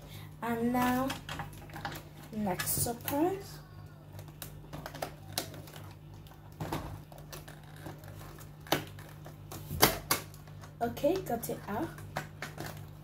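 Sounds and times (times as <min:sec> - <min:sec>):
steady low hum: 0:00.0 - 0:13.0
plastic package crinkling: 0:04.2 - 0:10.8.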